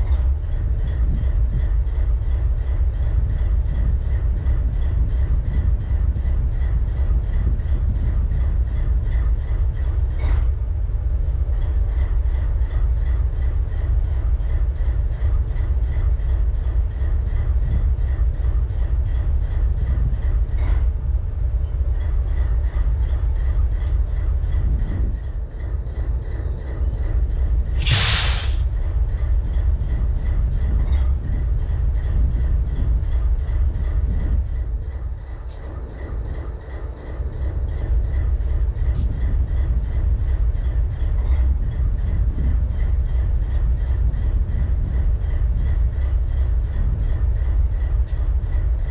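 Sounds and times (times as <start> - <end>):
locomotive engine idling: 0.0 - 48.9
loud burst of hiss: 27.8 - 28.7.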